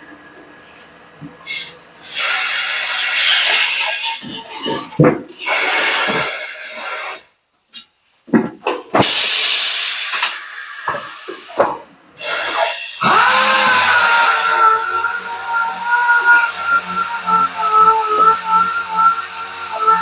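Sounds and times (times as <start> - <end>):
compressed air hissing: 1.5 - 4.3, 5.4 - 7.3, 9.0 - 20.0
steady tone: 13.0 - 20.0.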